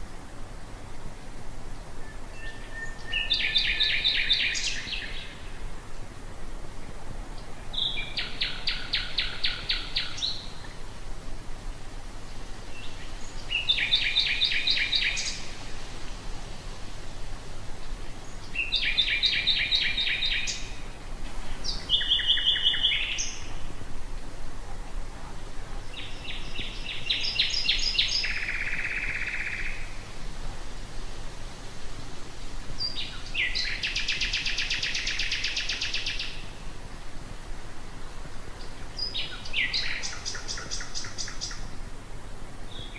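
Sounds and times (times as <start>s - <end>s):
nightingale singing: 1.9s - 5.6s, 7.3s - 10.8s, 12.3s - 15.6s, 17.8s - 23.7s, 25.7s - 30.0s, 32.7s - 36.7s, 38.5s - 41.8s.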